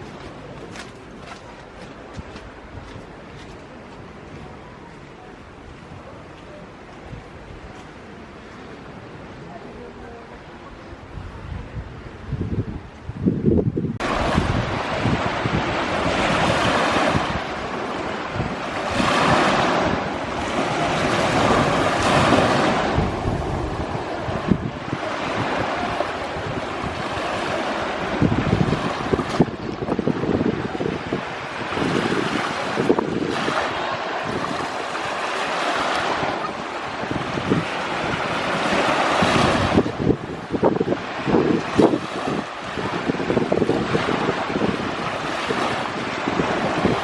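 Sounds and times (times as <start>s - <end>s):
sea waves washing ashore: 0.0s - 47.0s
wind buffeting microphone: 0.0s - 47.0s.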